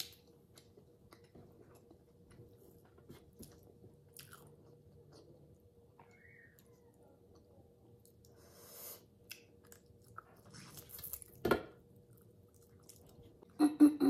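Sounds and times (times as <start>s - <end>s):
person chewing: 2.8s - 5.4s, 9.2s - 11.4s, 12.0s - 13.6s
lip smacks: 9.2s - 11.4s.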